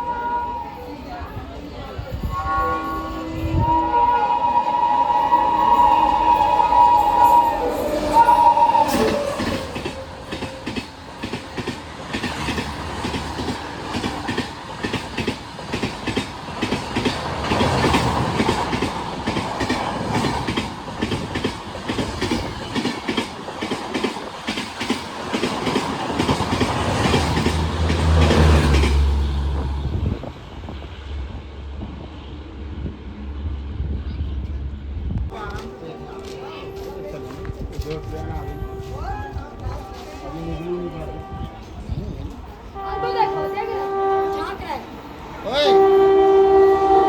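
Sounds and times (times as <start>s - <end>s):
train horn: 0.0s - 1.4s, 2.2s - 11.0s, 35.3s - 42.1s, 42.7s - 47.0s.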